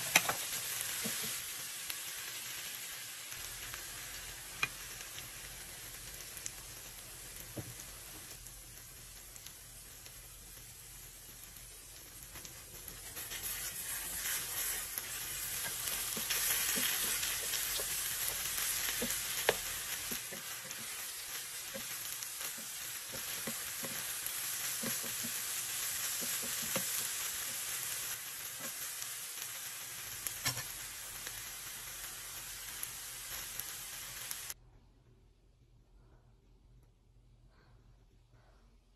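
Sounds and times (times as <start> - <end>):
spatula scraping and tapping pan: 0.0 - 1.4, 12.9 - 21.0, 21.7 - 27.6, 30.4 - 30.7
food sizzling in a frying pan: 0.0 - 34.6.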